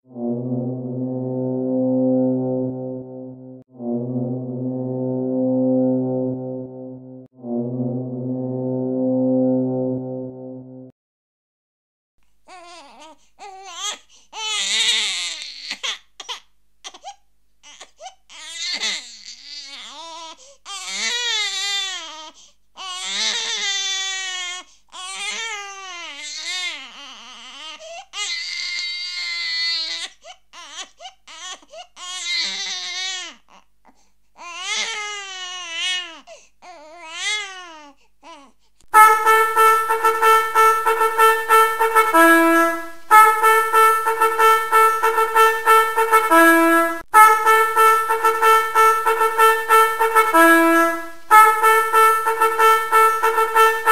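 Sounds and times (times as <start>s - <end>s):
loud trumpet-like tone: 0.1s - 10.9s, 38.9s - 53.9s
infant-like wailing cries: 12.5s - 33.7s, 34.4s - 38.6s.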